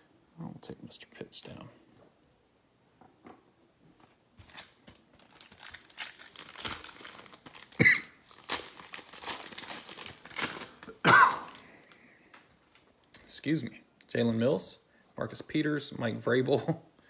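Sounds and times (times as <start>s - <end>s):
wrapper crinkling and tearing: 4.0s - 12.9s.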